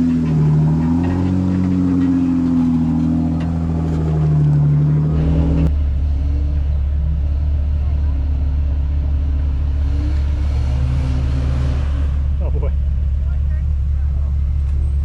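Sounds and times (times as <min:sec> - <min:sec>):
low steady engine rumble: 0:00.0 - 0:15.0.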